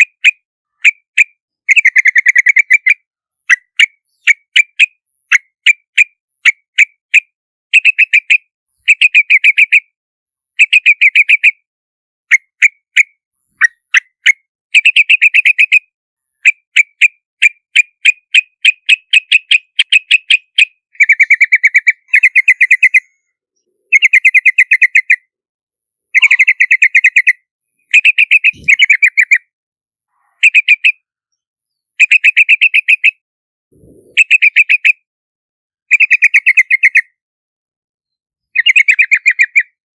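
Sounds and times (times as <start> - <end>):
bird calling sharp notes: 18.4 - 25.2, 26.2 - 29.4, 33.8 - 35.0.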